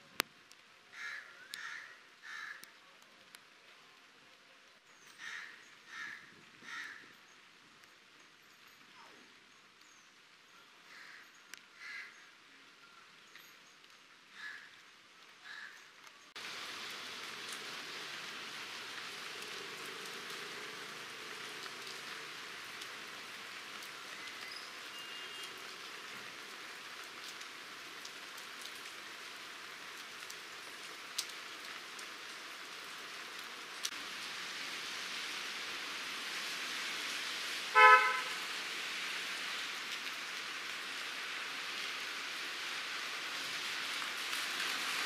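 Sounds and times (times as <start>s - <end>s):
rain on wet road: 0.0s - 45.0s
car horn toot: 24.9s - 25.5s, 37.8s - 38.4s.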